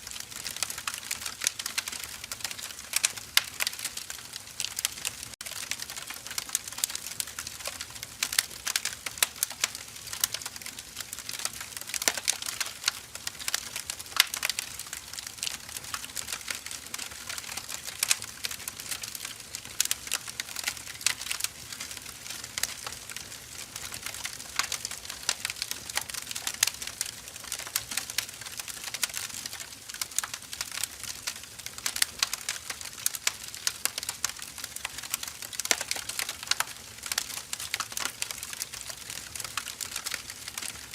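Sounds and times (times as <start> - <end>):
firewood crackling: 0.0 - 40.9.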